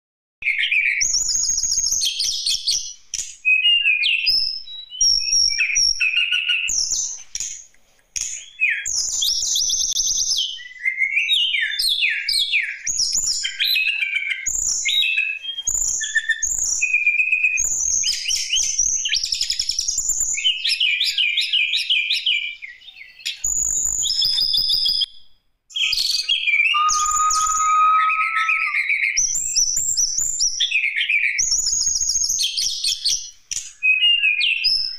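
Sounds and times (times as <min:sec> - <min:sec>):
bird singing chirps and trills: 0:25.7 - 0:29.2.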